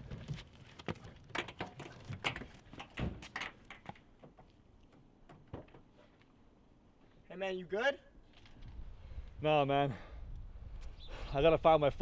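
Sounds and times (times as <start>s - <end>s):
sharp knocks and thuds: 0.0s - 4.5s.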